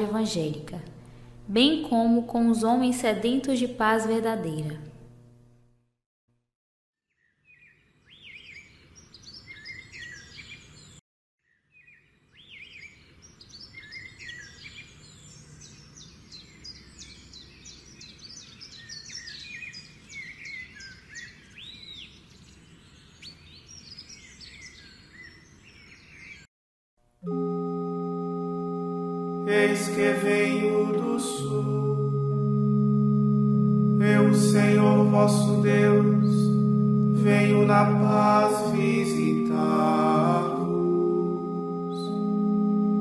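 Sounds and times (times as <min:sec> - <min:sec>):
songbirds chirping and whistling: 0:07.2 - 0:26.5
held musical note: 0:27.2 - 0:43.0.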